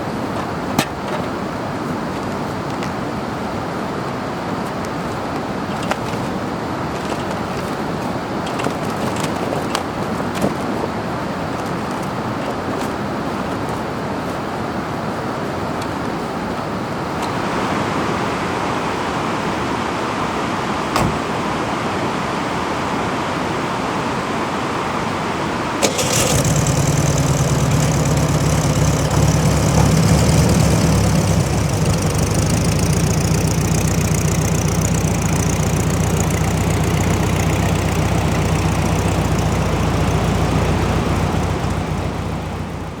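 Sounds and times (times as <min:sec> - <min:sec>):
constant hiss: 0:00.0 - 0:43.0
engine starting and idling: 0:05.7 - 0:10.8, 0:25.8 - 0:43.0.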